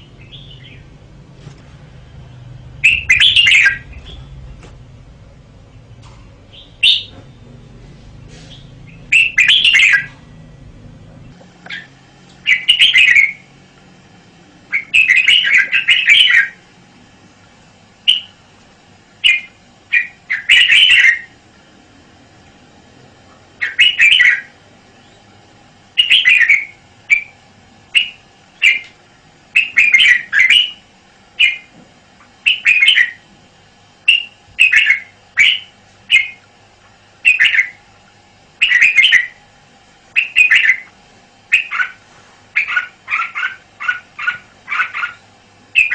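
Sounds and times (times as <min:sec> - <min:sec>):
bird chirping song: 0:00.0 - 0:01.0, 0:02.0 - 0:04.6, 0:05.7 - 0:07.6, 0:08.4 - 0:10.2, 0:11.2 - 0:13.5, 0:14.7 - 0:16.6, 0:18.0 - 0:18.4, 0:19.2 - 0:21.4, 0:23.6 - 0:25.3, 0:26.0 - 0:28.9, 0:29.6 - 0:30.8, 0:31.4 - 0:31.7, 0:32.4 - 0:33.2, 0:34.1 - 0:36.5, 0:37.2 - 0:37.8, 0:38.6 - 0:39.4, 0:40.1 - 0:40.9, 0:41.5 - 0:42.0, 0:42.6 - 0:45.9
faint steady hum: 0:00.0 - 0:45.9.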